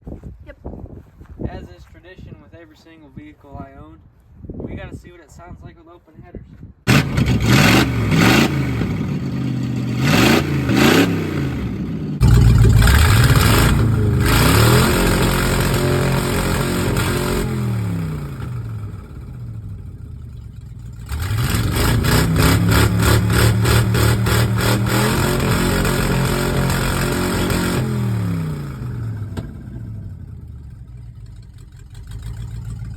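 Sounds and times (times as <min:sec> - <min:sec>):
car engine revving: 0:06.9 - 0:32.9.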